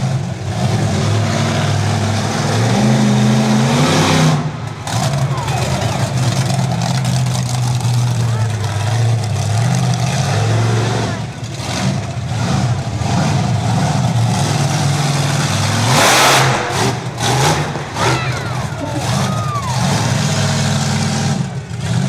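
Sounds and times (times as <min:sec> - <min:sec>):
monster truck engine revving: 0:00.0 - 0:22.0
loud rushing burst: 0:13.4 - 0:20.6.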